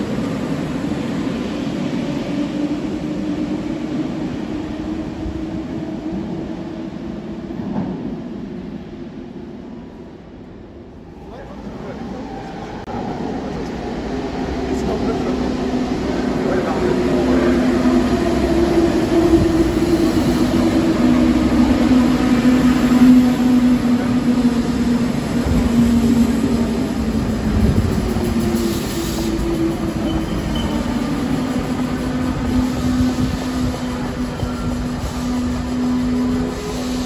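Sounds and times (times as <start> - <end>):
train wheel and rail noise: 0.0 - 37.0.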